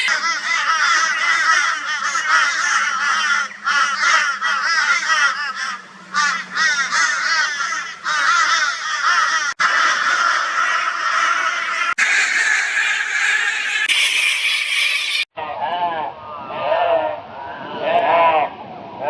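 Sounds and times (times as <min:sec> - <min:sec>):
crows cawing: 0:00.0 - 0:15.3.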